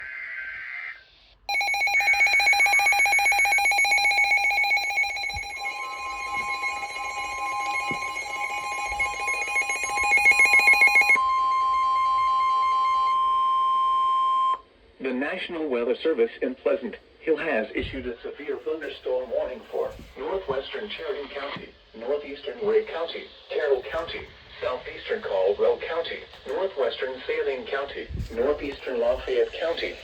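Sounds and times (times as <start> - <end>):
pulsing multi-tone alarm: 1.5 - 14.6
steady single-pitch warning tone: 1.5 - 14.7
voice announcing warning: 15.0 - 30.0.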